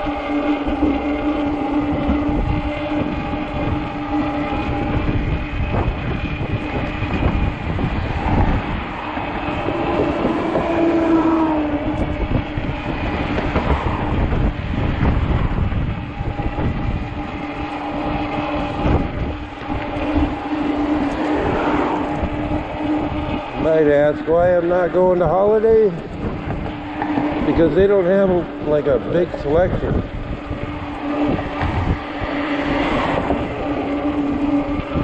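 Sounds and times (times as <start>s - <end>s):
steady droning hum: 0.0s - 35.0s
wind buffeting microphone: 0.0s - 35.0s.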